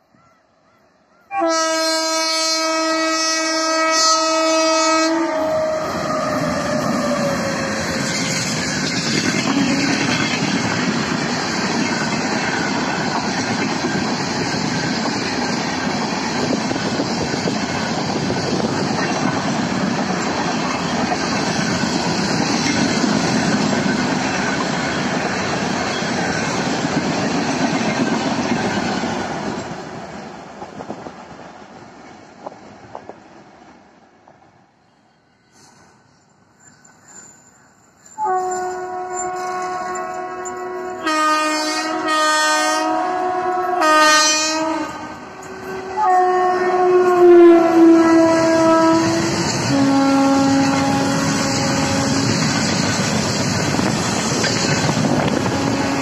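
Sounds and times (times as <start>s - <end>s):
locomotive horn blast: 1.3s - 8.3s, 9.4s - 10.2s, 38.2s - 52.6s, 55.1s - 56.0s
train wheels clickety-clack: 6.3s - 33.6s, 48.4s - 56.0s.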